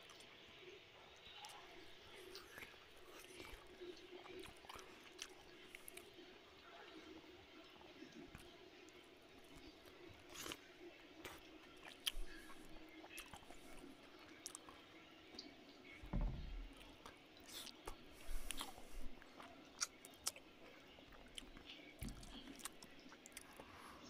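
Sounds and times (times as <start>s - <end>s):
man chewing: 2.2s - 6.1s, 9.4s - 14.8s, 16.8s - 23.9s
soft low thumps: 16.0s - 16.8s.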